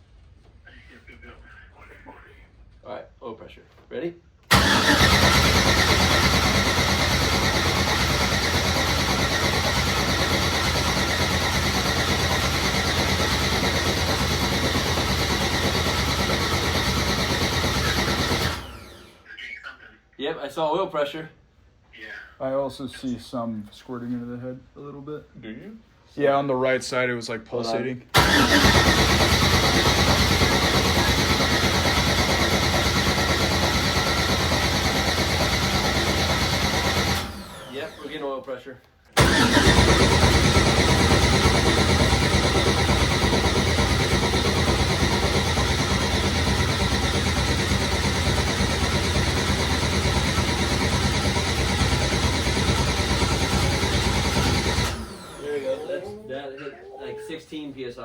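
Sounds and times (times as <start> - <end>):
car engine cranking on starter motor: 4.5 - 19.2, 28.1 - 38.1, 39.2 - 55.5.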